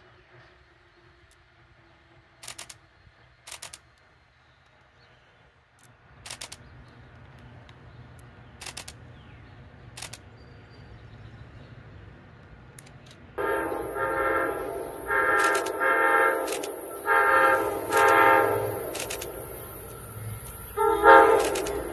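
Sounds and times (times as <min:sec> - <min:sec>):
distant trains rumbling: 0:00.0 - 0:04.4, 0:13.4 - 0:21.9
bursts of rapid clicking: 0:13.4 - 0:21.9.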